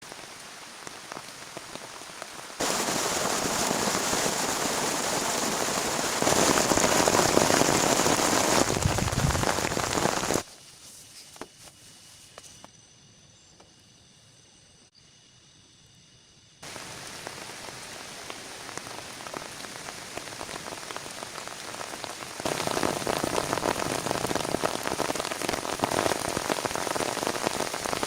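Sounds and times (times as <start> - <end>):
rain falling: 0.0 - 10.5, 16.6 - 28.0.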